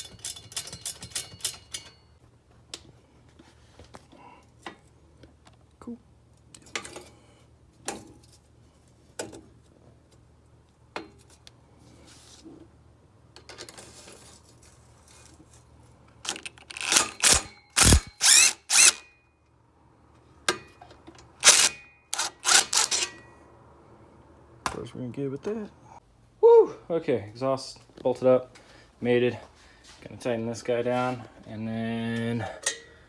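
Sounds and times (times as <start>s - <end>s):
power tool bursts: 16.3s - 19.0s, 21.4s - 23.1s
tool clicks: 16.3s - 19.0s, 21.4s - 23.1s.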